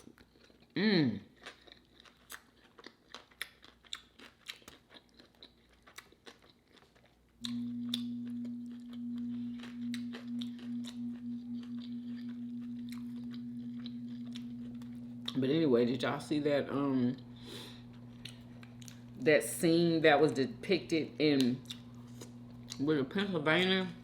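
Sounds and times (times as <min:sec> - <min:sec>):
chewing crunchy sandwich: 0:00.0 - 0:15.5, 0:17.6 - 0:19.2, 0:21.4 - 0:22.9
steady low hum: 0:07.4 - 0:24.0.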